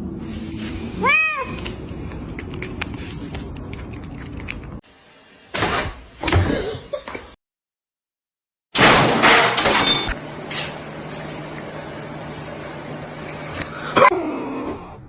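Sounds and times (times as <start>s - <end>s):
crashing and clattering: 8.8s - 10.1s.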